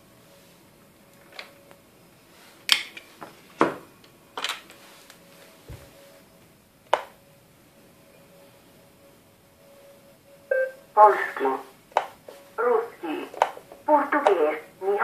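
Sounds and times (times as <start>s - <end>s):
faint steady tone: 7.2s - 11.6s.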